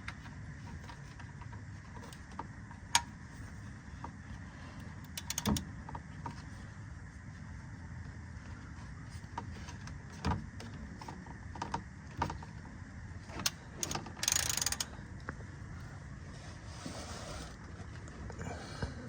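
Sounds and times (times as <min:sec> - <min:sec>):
hand tools clicking on metal: 0:13.4 - 0:14.9.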